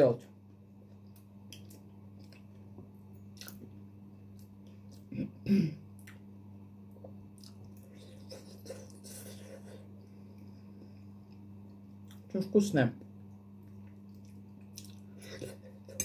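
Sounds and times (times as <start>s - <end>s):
steady low hum: 0.0s - 16.0s
person chewing food: 0.8s - 5.1s, 6.9s - 10.5s, 13.6s - 16.0s.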